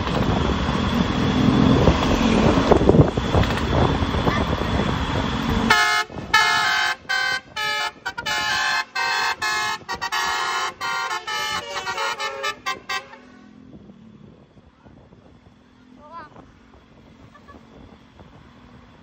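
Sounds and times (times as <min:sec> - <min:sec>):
multi-tone bus horn tune: 0:05.6 - 0:13.6.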